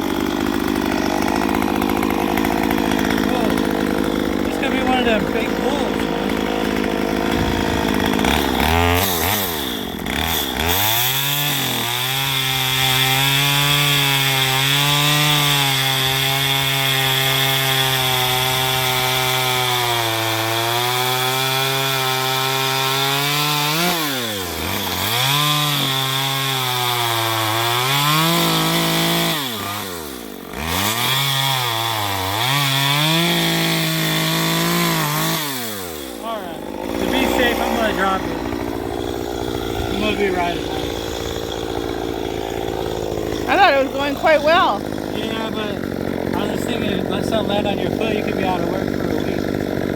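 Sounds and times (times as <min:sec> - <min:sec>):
chainsaw cutting log: 0:00.0 - 0:49.9.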